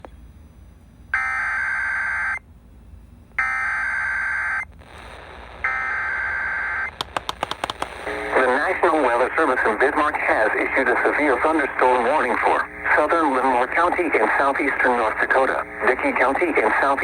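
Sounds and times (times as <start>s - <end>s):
sharp clicks: 7.0s - 8.0s.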